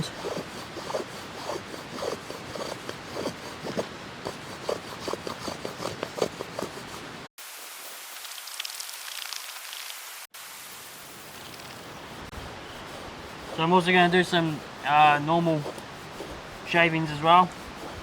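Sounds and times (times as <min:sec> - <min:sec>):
knife scraping wood: 0:00.0 - 0:07.3, 0:12.1 - 0:18.0.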